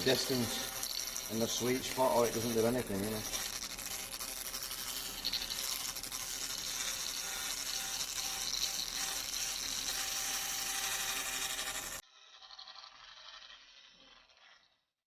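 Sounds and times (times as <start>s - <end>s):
laser cleaner sizzling hiss: 0.0s - 12.0s.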